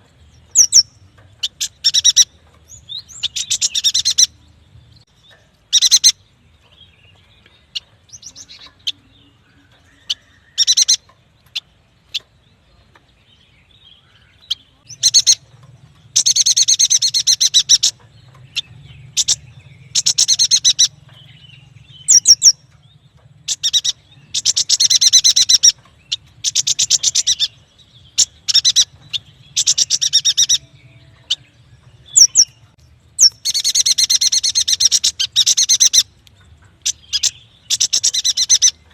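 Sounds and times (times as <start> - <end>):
sharp bird chirps: 0.5 - 4.4, 16.1 - 30.7.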